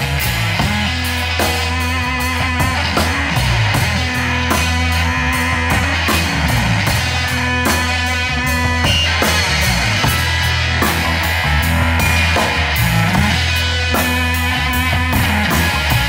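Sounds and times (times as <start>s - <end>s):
bass line: 0.0s - 16.0s
drum kit beat: 0.0s - 16.0s
guitar: 0.0s - 16.0s.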